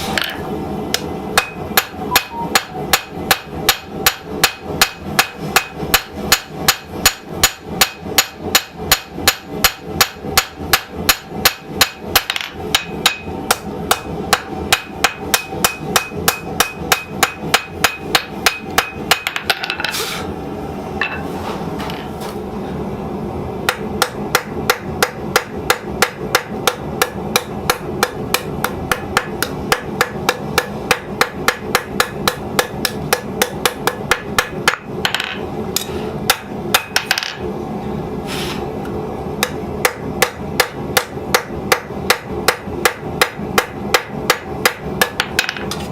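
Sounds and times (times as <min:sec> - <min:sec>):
hammer striking steel on anvil: 0:01.0 - 0:19.8, 0:23.7 - 0:37.3.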